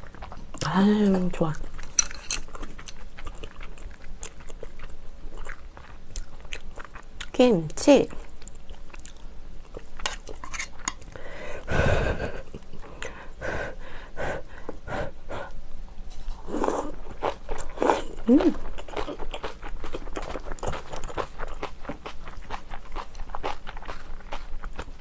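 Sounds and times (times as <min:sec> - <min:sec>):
close chewing: 0:00.0 - 0:07.4, 0:16.4 - 0:25.0
loud breath: 0:11.2 - 0:12.4, 0:13.0 - 0:15.5.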